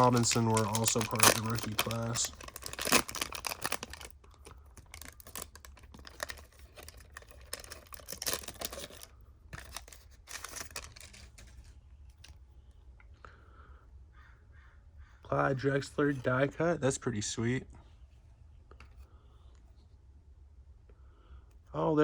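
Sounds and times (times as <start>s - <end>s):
trading cards flipping and rustling: 0.0s - 12.4s.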